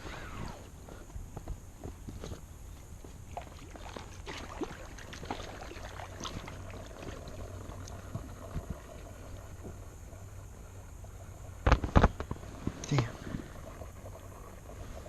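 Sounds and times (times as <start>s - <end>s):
steady background hiss: 0.0s - 15.0s
light water splashes: 3.0s - 15.0s
inflatable raft clicks and creaks: 5.1s - 15.0s.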